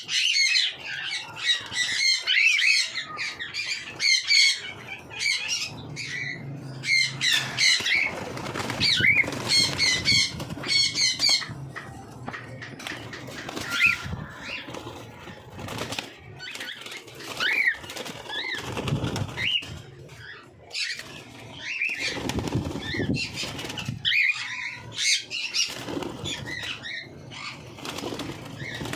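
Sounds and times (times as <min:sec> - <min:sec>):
cockatiels chirping: 0:00.0 - 0:11.9, 0:16.4 - 0:18.6, 0:19.4 - 0:27.6
wing flutters and rustling: 0:07.5 - 0:11.5, 0:12.7 - 0:28.9.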